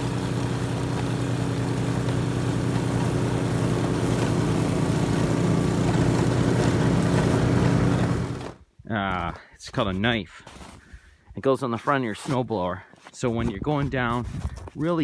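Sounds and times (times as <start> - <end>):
snowblower engine running: 0.0 - 8.6.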